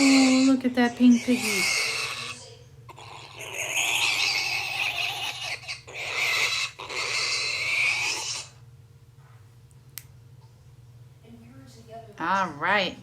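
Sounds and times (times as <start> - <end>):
pig squealing: 0.0 - 8.6.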